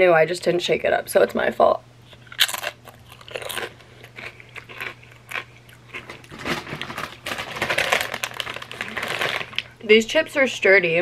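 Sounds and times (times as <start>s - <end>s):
crunching chip: 2.2s - 9.8s.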